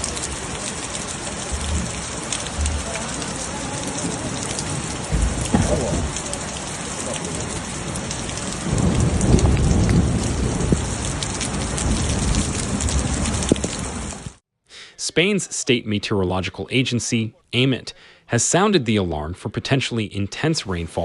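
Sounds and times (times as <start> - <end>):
heavy rain pouring: 0.0 - 14.4.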